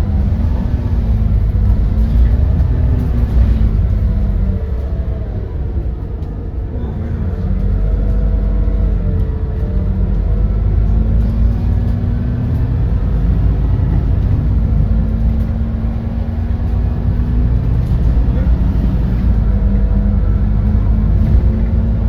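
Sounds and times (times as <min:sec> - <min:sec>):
bus engine rumble: 0:00.0 - 0:22.0.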